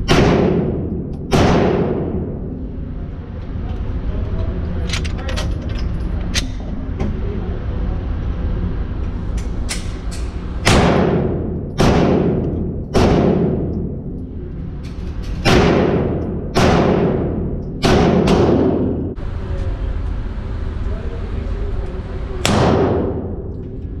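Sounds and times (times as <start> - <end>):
pistol shots echoing indoors: 0.0 - 2.5, 10.6 - 14.1, 15.4 - 19.2, 22.4 - 23.6
low background hum: 0.0 - 24.0.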